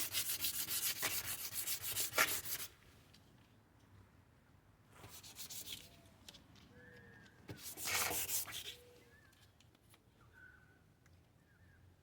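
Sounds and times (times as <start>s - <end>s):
sandpaper rubbing on plastic: 0.0s - 2.7s, 5.1s - 5.9s, 7.6s - 8.8s.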